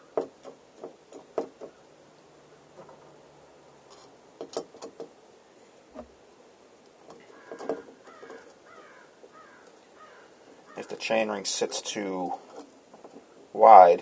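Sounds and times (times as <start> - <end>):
tools clicking and knocking: 3.9 - 5.2
birds calling: 7.1 - 11.0.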